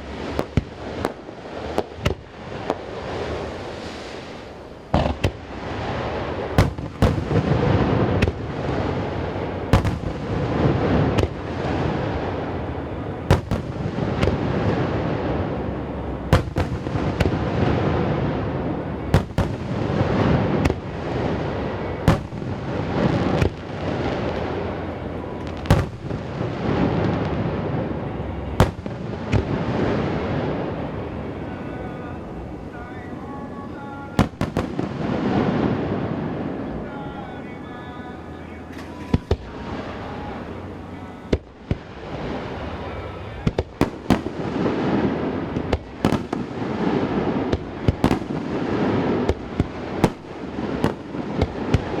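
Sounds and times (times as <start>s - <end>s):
continuous rumble: 0.0s - 52.0s.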